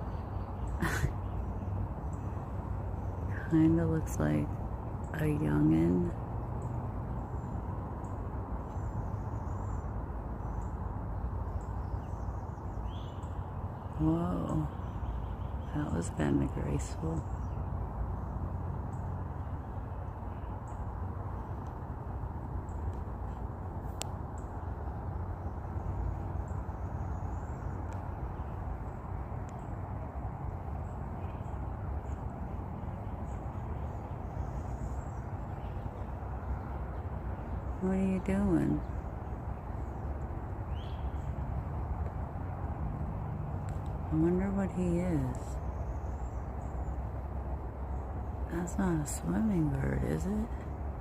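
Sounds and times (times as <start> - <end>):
low background rumble: 0.0 - 51.0
faint high ticks: 28.8 - 29.7.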